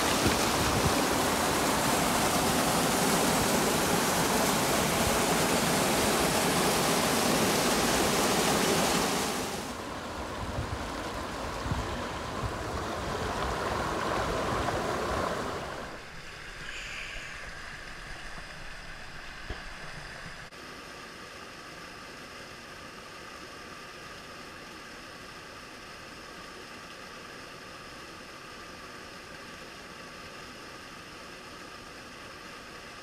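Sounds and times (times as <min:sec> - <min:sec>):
waterfall and stream rushing: 0:00.0 - 0:22.1.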